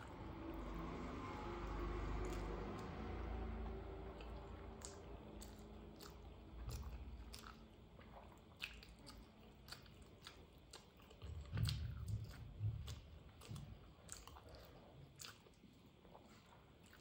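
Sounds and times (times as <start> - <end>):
quiet chewing: 3.6 - 17.0
wet mouth clicks and smacks: 4.8 - 11.0.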